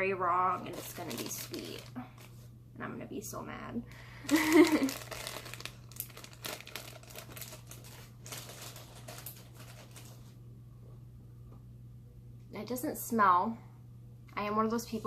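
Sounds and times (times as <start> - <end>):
plastic packaging crinkling: 0.5 - 2.4, 4.0 - 10.3.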